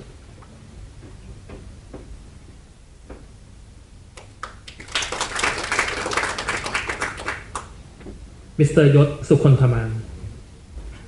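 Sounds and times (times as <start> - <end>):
audience applause: 4.4 - 7.7.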